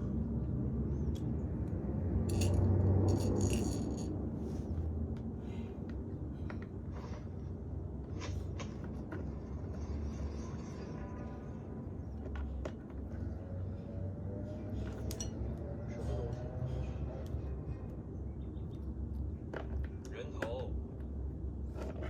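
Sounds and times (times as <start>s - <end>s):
metallic clinks and jingling: 2.3s - 4.1s.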